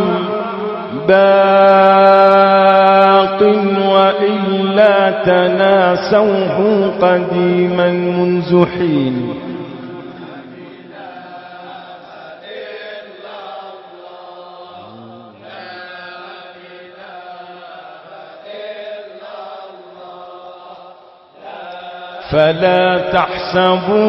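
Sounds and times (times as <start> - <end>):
voices chanting: 10.2 - 22.9.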